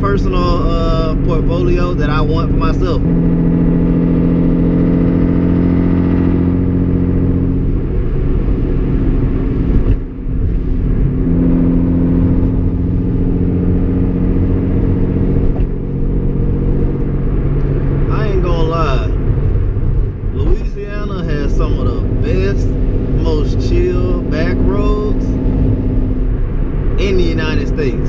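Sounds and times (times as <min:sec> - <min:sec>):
car engine droning inside cabin: 0:00.0 - 0:28.0.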